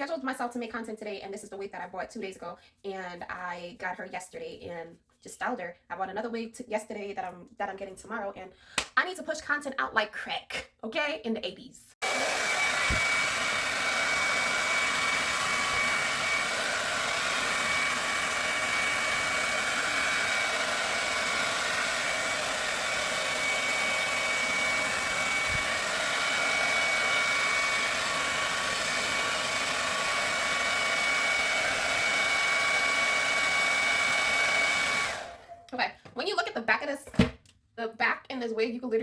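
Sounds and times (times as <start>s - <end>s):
hair dryer blowing: 12.0s - 35.7s.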